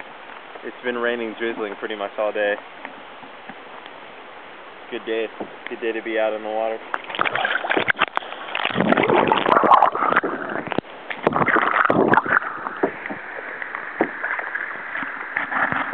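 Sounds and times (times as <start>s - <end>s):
paddle strokes splashing water: 0.0s - 15.9s.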